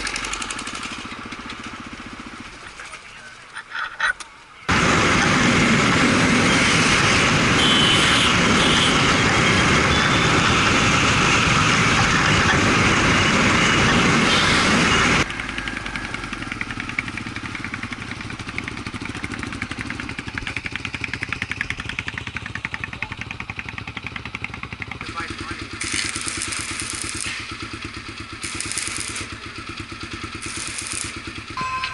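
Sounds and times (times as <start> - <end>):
motorcycle engine running: 0.0 - 3.4, 7.2 - 31.9
loud steady rushing noise: 4.7 - 15.6, 25.0 - 27.6, 28.4 - 29.4, 30.4 - 31.5.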